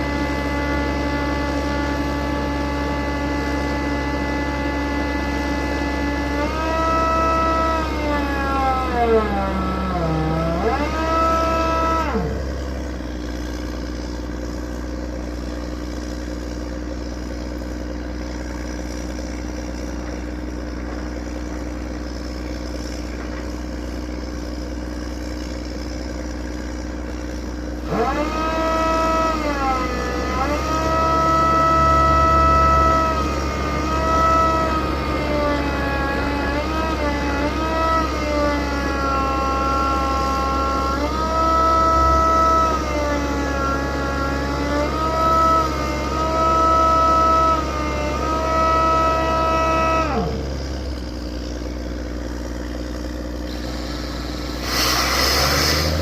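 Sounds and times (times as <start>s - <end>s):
drilling machine humming: 0.0s - 56.0s.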